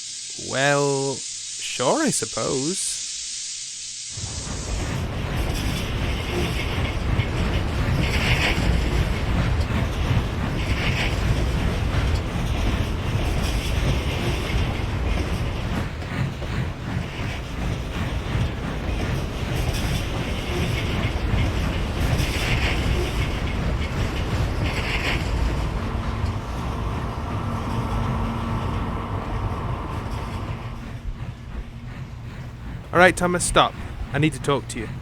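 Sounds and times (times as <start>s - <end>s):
brief hissing: 0.0s - 5.0s
train rumbling on rails: 4.2s - 35.0s.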